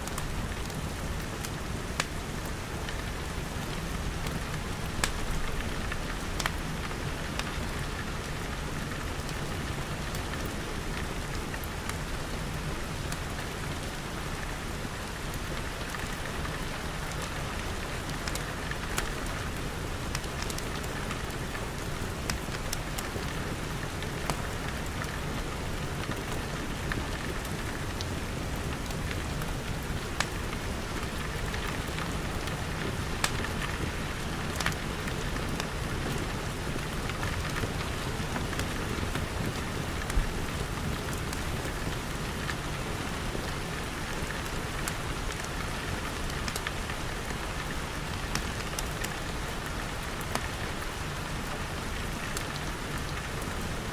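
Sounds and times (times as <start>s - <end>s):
rain pattering on glass: 0.0s - 53.9s
wood fire crackling pops: 4.2s - 5.8s.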